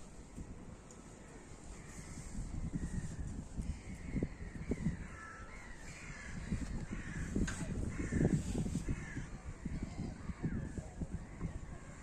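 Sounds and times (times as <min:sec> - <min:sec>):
wind on microphone: 0:00.0 - 0:12.0
large birds calling harshly: 0:01.2 - 0:12.0.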